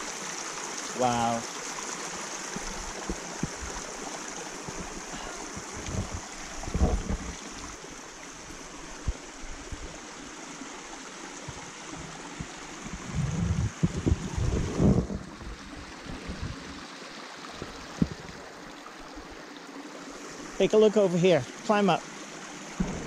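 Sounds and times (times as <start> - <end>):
mountain stream rushing over rocks: 0.0 - 23.0
low thumps: 22.8 - 23.0.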